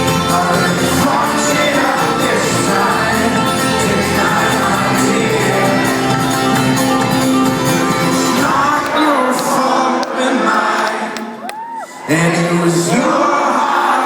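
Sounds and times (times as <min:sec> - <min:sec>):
folk-rock band playing: 0:00.0 - 0:09.5
voices singing and shouting: 0:00.0 - 0:14.0.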